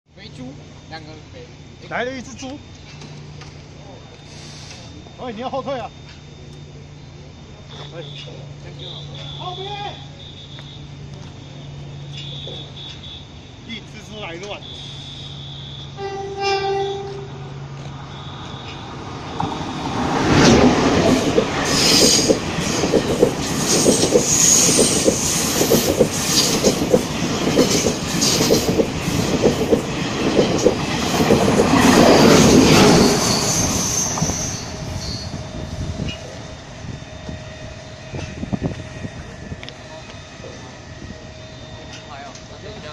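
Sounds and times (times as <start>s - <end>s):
train horn: 14.5s - 18.9s, 31.8s - 36.1s
wheel squeal: 14.6s - 42.4s
wheels clicking over rail joints: 16.4s - 34.4s.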